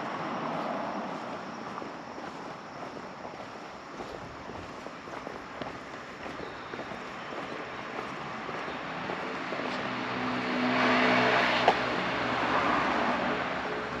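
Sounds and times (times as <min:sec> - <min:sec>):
vehicle passing by: 0:00.0 - 0:03.0, 0:07.4 - 0:14.0.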